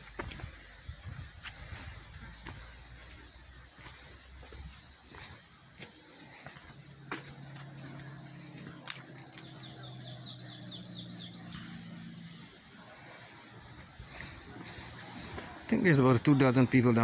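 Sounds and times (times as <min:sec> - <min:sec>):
bird trilling: 0:09.4 - 0:12.7.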